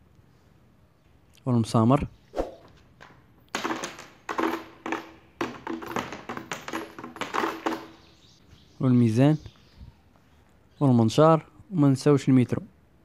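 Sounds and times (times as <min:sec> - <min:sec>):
nails clinking together: 0:03.0 - 0:08.4.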